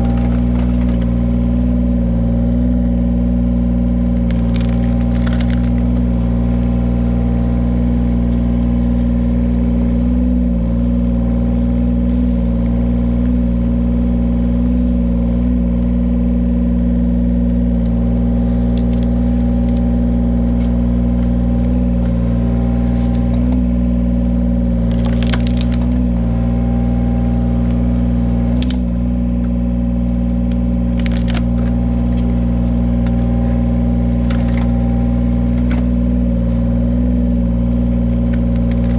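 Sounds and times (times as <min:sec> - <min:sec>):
wood splitting cracks: 0:00.0 - 0:01.8, 0:03.9 - 0:06.5, 0:17.4 - 0:38.9
wood splitter engine running: 0:00.0 - 0:38.9.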